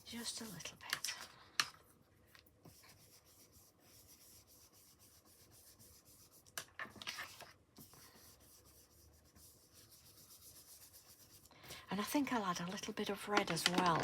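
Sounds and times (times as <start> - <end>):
ink brush rubbing on cardstock: 0.0 - 0.8, 2.7 - 13.1.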